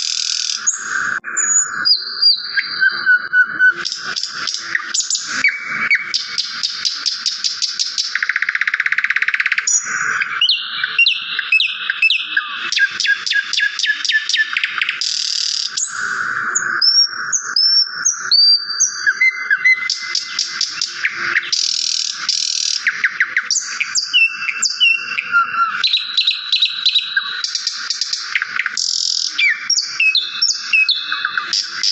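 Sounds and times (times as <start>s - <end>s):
songbirds singing and calling: 0.0s - 31.9s.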